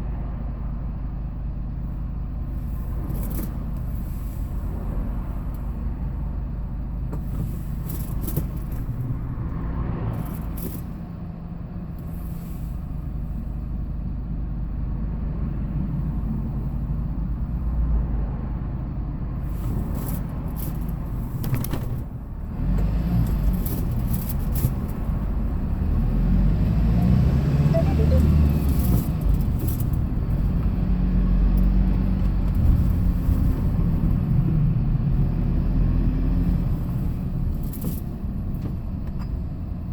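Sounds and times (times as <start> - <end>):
road rumble: 0.0 - 39.9
truck engine drone: 22.2 - 37.6.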